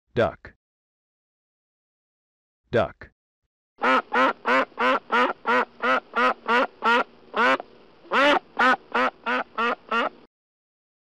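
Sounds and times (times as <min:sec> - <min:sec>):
duck quacking: 0:03.8 - 0:10.2.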